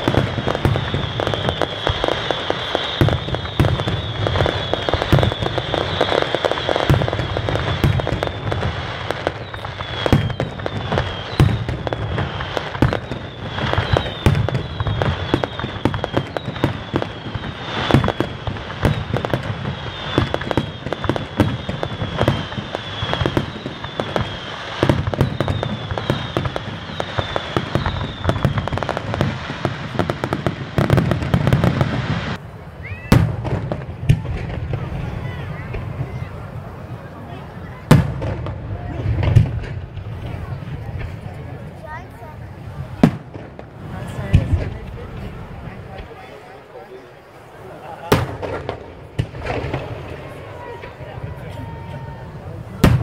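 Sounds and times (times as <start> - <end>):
falling firework whistles: 0.0 - 36.6
fireworks banging and crackling: 0.0 - 53.0.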